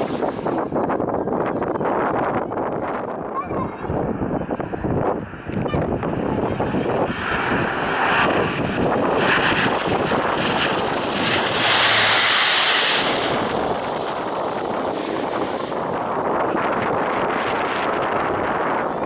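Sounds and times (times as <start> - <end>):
jet engines passing: 0.0 - 1.1, 3.9 - 19.0
wind buffeting microphone: 0.0 - 19.0.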